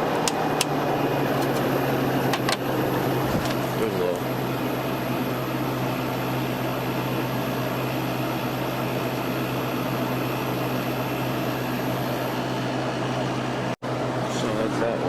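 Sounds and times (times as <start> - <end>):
air conditioner fan rushing: 0.0 - 15.0
low motor hum: 0.0 - 15.0.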